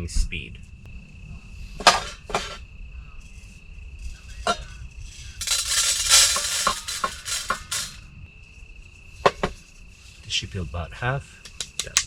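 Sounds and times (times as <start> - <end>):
light clinks: 5.4 - 8.0
rustling handling noise: 5.4 - 8.0.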